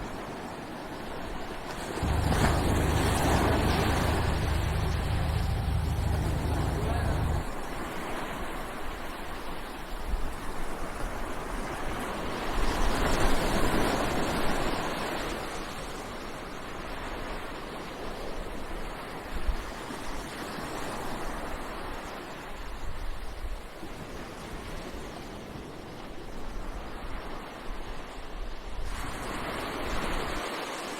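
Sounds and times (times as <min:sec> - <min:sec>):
ocean surf washing onto beach: 0:01.6 - 0:10.5.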